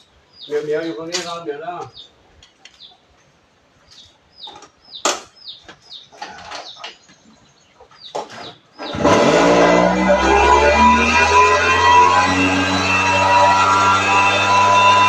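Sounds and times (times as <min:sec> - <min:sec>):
bird chirping: 0:00.0 - 0:09.8.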